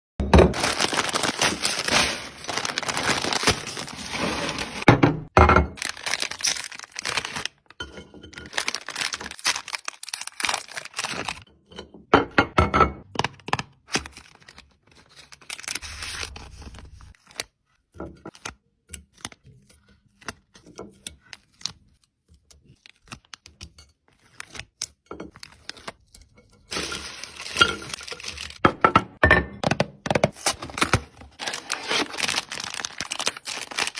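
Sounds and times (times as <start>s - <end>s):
snack packets crinkling: 0.6s - 4.9s, 5.8s - 7.8s, 8.4s - 11.4s, 13.2s - 17.5s, 26.7s - 28.6s, 30.2s - 33.9s.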